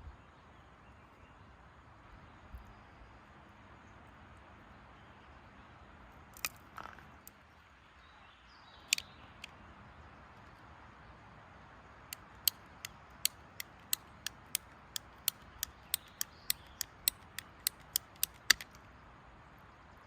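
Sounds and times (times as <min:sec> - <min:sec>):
sharp mechanical clicks: 0:06.4 - 0:07.4, 0:08.8 - 0:09.5, 0:12.1 - 0:18.9.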